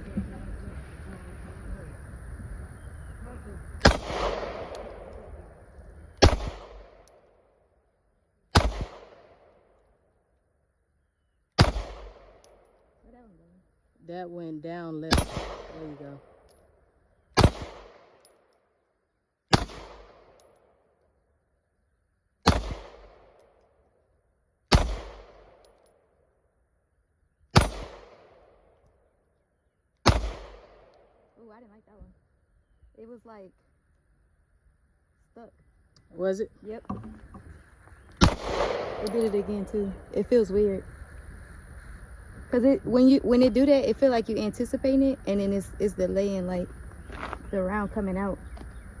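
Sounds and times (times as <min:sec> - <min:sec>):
pistol shots with echo: 0:03.8 - 0:05.3, 0:06.2 - 0:07.1, 0:08.5 - 0:09.6, 0:11.6 - 0:12.6, 0:15.1 - 0:16.4, 0:17.4 - 0:18.3, 0:19.5 - 0:20.4, 0:22.4 - 0:23.4, 0:24.7 - 0:25.7, 0:27.6 - 0:28.7, 0:30.0 - 0:31.2, 0:38.2 - 0:40.0.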